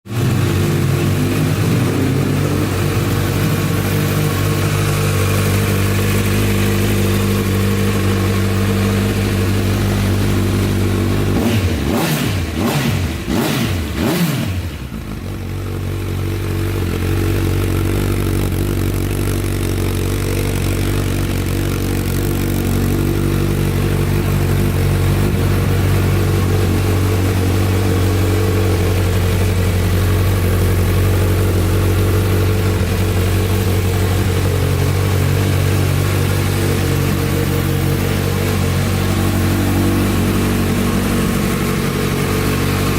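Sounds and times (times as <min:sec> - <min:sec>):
engine revving in throttle blips: 0:00.1 - 0:15.2
motorcycle engine idling: 0:00.1 - 0:42.9.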